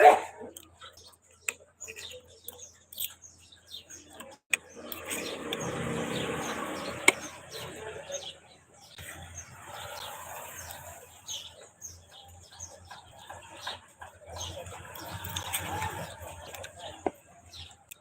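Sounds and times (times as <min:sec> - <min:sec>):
small birds chirping: 0:00.4 - 0:18.0.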